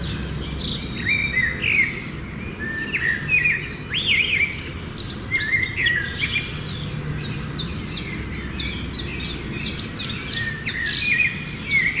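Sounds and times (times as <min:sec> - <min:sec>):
songbirds chirping and singing: 0:00.0 - 0:12.0.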